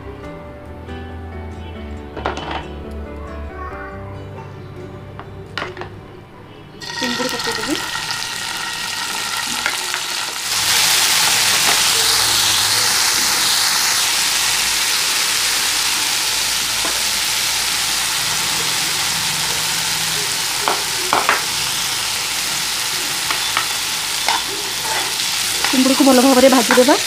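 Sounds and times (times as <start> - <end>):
prawns sizzling in hot oil: 6.8 - 27.0.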